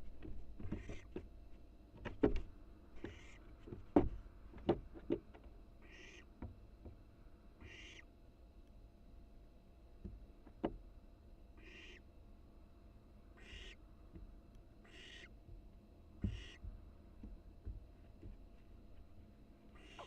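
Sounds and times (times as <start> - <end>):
knocks and thumps in nest box: 0.1 - 1.3, 2.0 - 5.4
owlet hissing calls: 5.8 - 6.2, 7.6 - 8.0, 11.6 - 12.0, 13.4 - 13.8, 14.9 - 15.3, 19.8 - 20.0.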